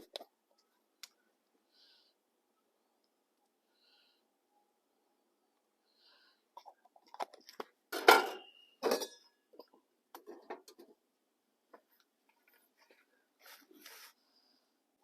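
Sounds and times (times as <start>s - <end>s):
cookware clanking: 8.0s - 9.3s.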